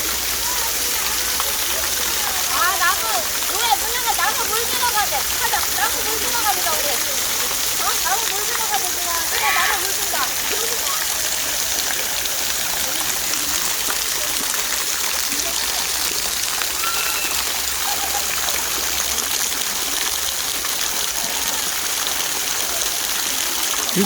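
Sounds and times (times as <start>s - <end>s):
stream water rushing: 0.0s - 24.0s.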